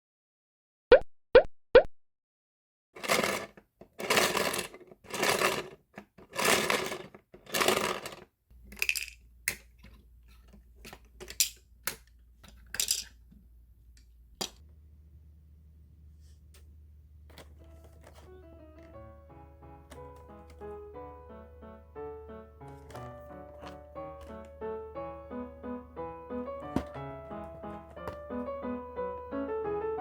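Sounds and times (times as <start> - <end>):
plastic packaging rustling: 3.0 - 8.2, 17.3 - 18.9, 22.7 - 24.6, 26.6 - 28.4
faint low hum: 12.1 - 18.4.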